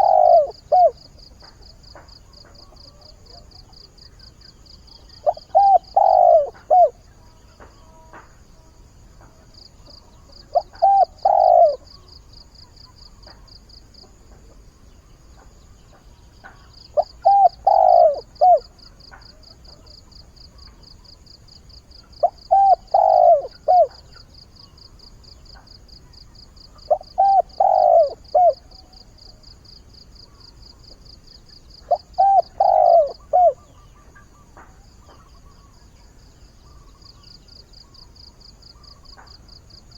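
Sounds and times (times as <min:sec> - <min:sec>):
dove cooing: 0:00.0 - 0:04.0, 0:05.0 - 0:07.1, 0:09.2 - 0:13.5, 0:16.4 - 0:20.8, 0:22.0 - 0:24.3, 0:25.6 - 0:29.4, 0:31.8 - 0:35.6.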